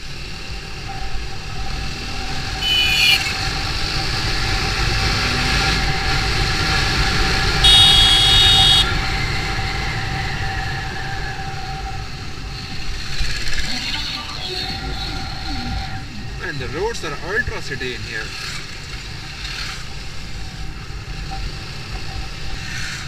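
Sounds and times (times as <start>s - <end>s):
motorcycle wind and road noise: 0.0s - 23.0s
vehicle horn honking: 2.6s - 3.4s, 7.6s - 9.0s.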